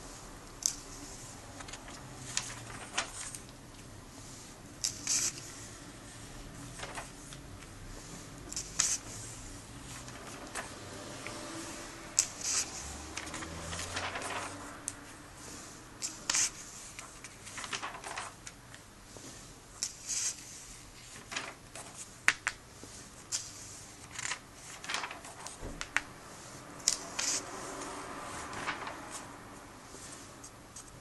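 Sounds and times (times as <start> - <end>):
comic book pages turning: 1.6 - 3.5, 6.7 - 7.4, 12.2 - 15.0, 16.0 - 18.6, 21.0 - 22.0, 23.4 - 26.0, 26.9 - 29.3.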